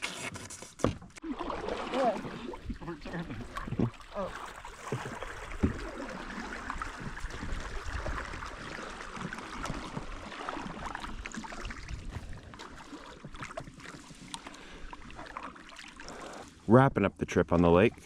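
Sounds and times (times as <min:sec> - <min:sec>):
water lapping around canoe: 0:00.0 - 0:16.7
knock on canoe: 0:04.8 - 0:06.1.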